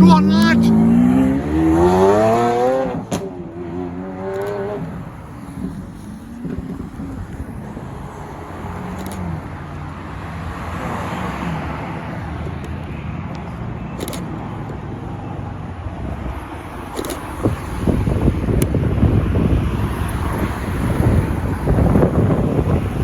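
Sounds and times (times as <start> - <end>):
tyre and road noise: 0.0 - 23.0.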